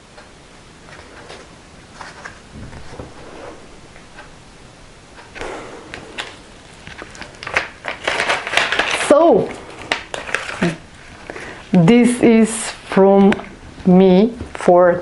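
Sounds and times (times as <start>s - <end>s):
paper pages rustling: 0.8s - 3.7s, 5.4s - 11.6s.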